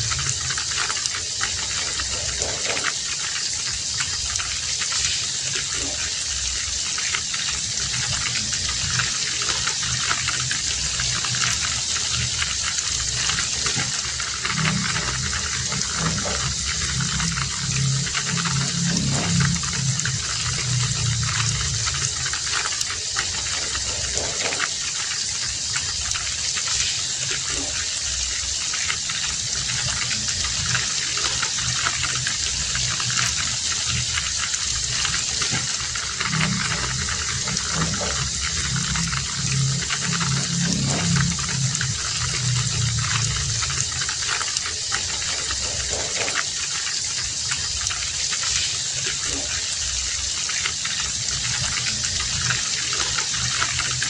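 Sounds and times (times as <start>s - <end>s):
drips and patters: 0.0s - 54.0s
heavy rain hissing: 0.0s - 54.0s
low rumble: 7.6s - 22.4s, 32.3s - 44.2s.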